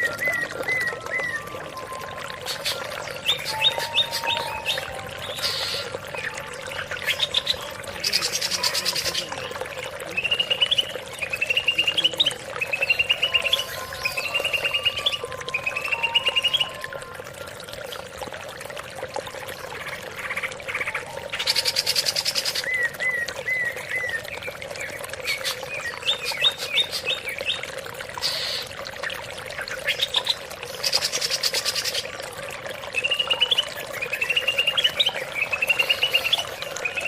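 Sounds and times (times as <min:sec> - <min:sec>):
bird singing whistled notes: 0:00.0 - 0:09.3, 0:10.2 - 0:16.9, 0:21.3 - 0:24.5
running water trickling: 0:00.0 - 0:37.0.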